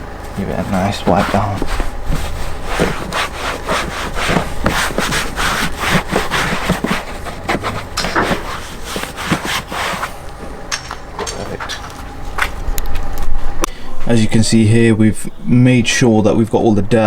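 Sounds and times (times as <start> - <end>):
hand scrubbing and wiping: 0.2 - 10.3.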